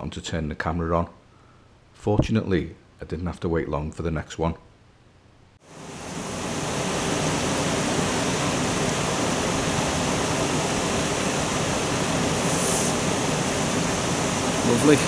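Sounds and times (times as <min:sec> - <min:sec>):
water rushing from overflow: 0:05.7 - 0:15.0.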